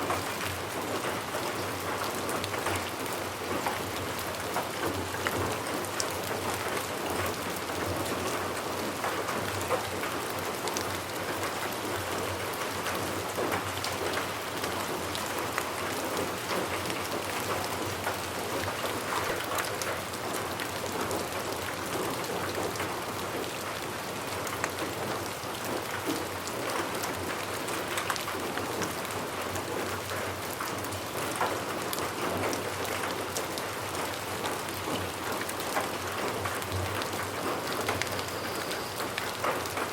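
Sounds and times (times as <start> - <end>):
raindrops ticking on surface: 0.0 - 39.9
rain hissing: 37.4 - 39.8.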